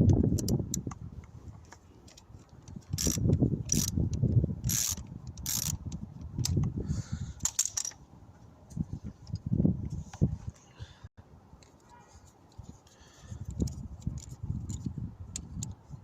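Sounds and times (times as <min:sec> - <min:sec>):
ratchet wrench clicking: 0:02.9 - 0:06.7.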